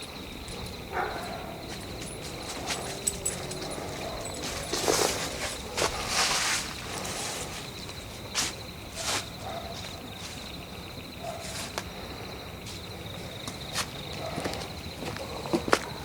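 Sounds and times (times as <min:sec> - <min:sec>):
crickets chirping: 0:00.0 - 0:16.0
footsteps on dry forest litter: 0:01.6 - 0:10.5.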